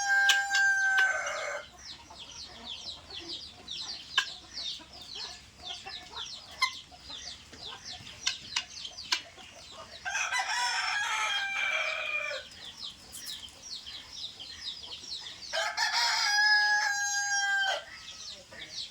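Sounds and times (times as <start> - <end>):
rooster crowing: 0.0 - 1.6, 10.1 - 12.4, 15.5 - 17.9
birds peeping: 0.0 - 18.9.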